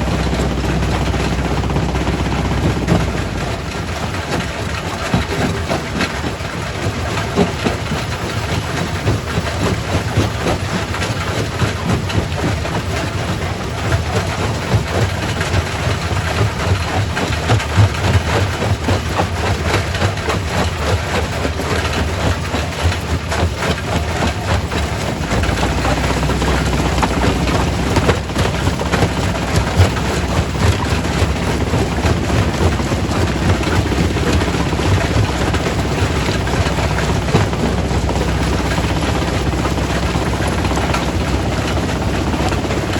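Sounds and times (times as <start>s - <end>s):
heavy engine drone: 0.0s - 42.9s
rock being crushed clattering: 21.7s - 41.6s.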